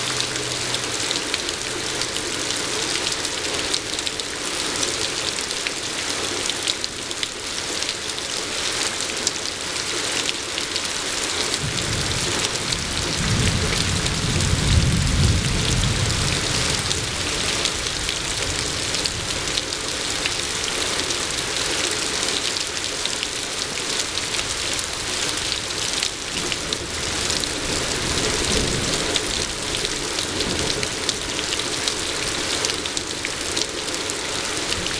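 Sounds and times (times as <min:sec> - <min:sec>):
rain pattering: 0:00.0 - 0:34.9
low rumble of thunder: 0:11.6 - 0:19.8, 0:25.0 - 0:31.5.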